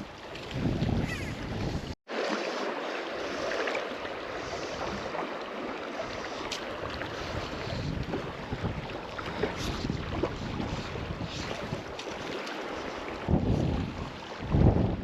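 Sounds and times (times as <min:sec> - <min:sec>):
wind gusting on microphone: 0:00.0 - 0:02.0, 0:06.7 - 0:12.0, 0:12.7 - 0:15.0
river water rushing: 0:02.1 - 0:07.7.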